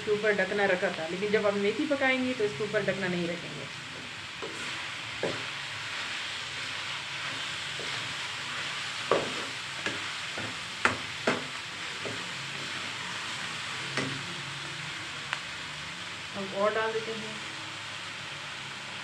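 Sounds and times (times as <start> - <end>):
leaves and potatoes sizzling in a wok: 0.0 - 19.0
spatula scraping and knocking a pan: 4.0 - 5.6, 7.2 - 12.9, 13.8 - 14.3.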